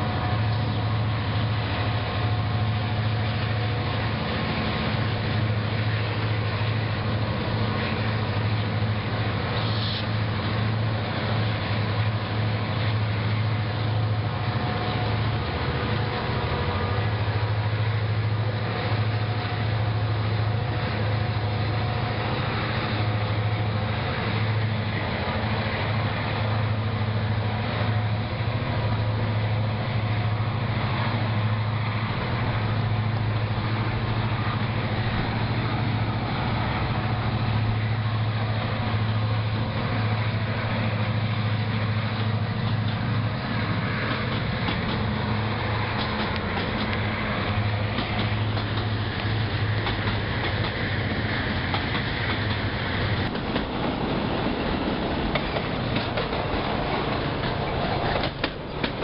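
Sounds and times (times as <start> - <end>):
deep locomotive engine drone: 0.0 - 59.0
steel wheels running on rails: 0.0 - 59.0.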